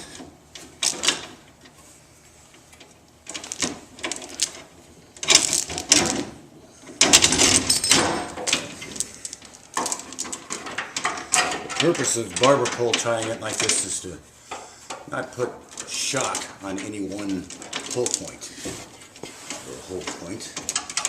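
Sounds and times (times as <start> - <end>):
steel chain rattling and clinking: 7.2 - 12.6.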